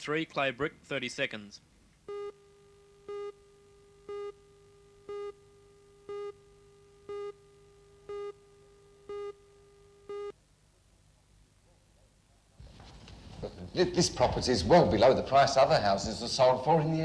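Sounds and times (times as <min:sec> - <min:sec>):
faint steady tone: 0:01.6 - 0:14.0.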